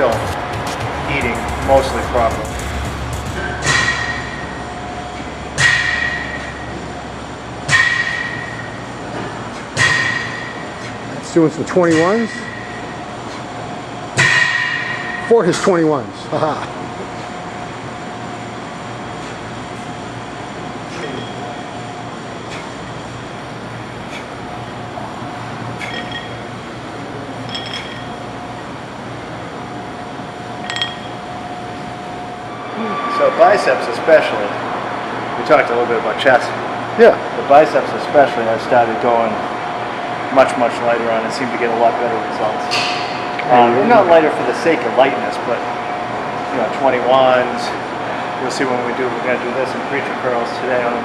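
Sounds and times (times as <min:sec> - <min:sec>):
background hum: 0:00.0 - 0:51.0
sharp metallic clanks ringing: 0:01.2 - 0:06.9, 0:25.8 - 0:26.5, 0:27.4 - 0:28.3, 0:30.6 - 0:31.4
metal weights clinking: 0:25.8 - 0:26.4, 0:27.4 - 0:28.2, 0:30.6 - 0:31.2.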